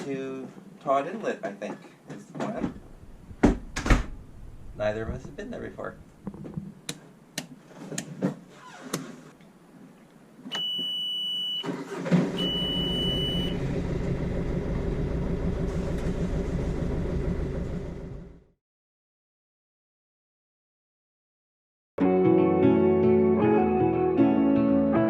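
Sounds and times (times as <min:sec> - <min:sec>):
diesel engine cranking and idling: 0:11.6 - 0:18.6
high electronic beep: 0:12.4 - 0:13.6.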